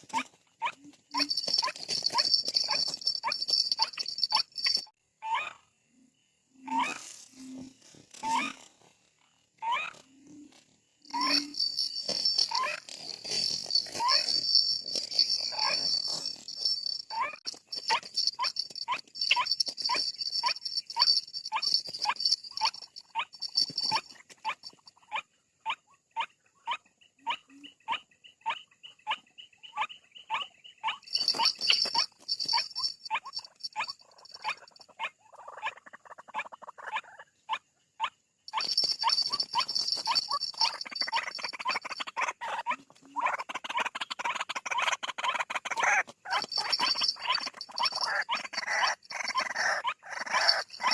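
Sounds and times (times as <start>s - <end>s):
waterhen calling harsh notes: 45.7s - 50.9s.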